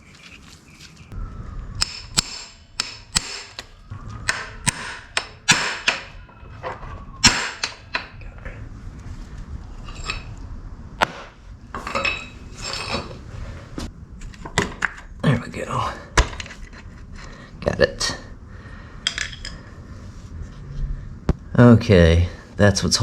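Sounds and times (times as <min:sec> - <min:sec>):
metal parts and tools clinking: 0:09.8 - 0:10.4, 0:11.7 - 0:13.2, 0:19.0 - 0:19.6.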